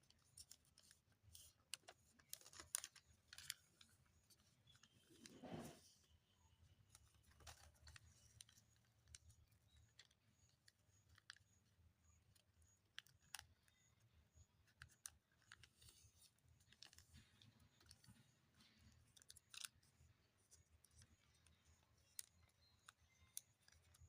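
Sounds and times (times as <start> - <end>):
paper being handled: 0.2 - 6.1
faint high chirp: 3.4 - 24.0.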